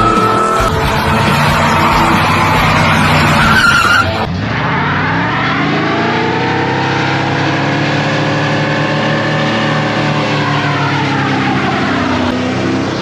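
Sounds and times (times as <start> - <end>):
pickup engine revving hard: 0.9 - 10.2.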